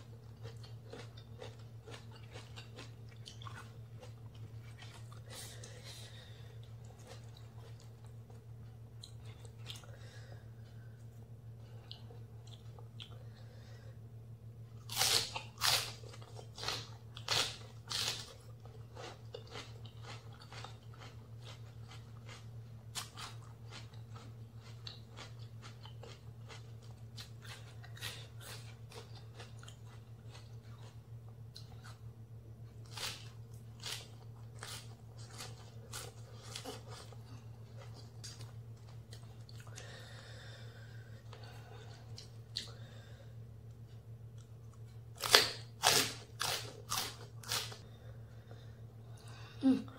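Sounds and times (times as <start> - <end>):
crunchy chewing of leafy vegetables: 0.0 - 13.8, 14.6 - 48.7.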